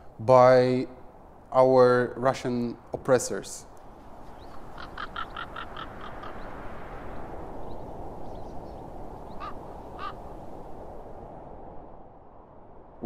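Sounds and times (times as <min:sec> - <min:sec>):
birds harsh calls: 0:03.7 - 0:10.4.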